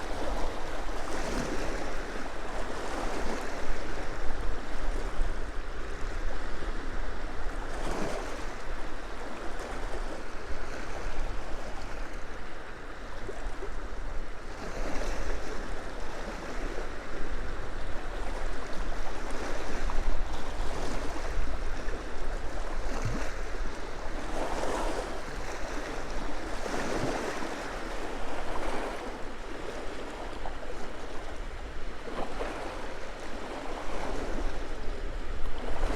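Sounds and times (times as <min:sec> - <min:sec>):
small waves lapping on shore: 0:00.0 - 0:35.9
wind rumbling on microphone: 0:13.2 - 0:35.9.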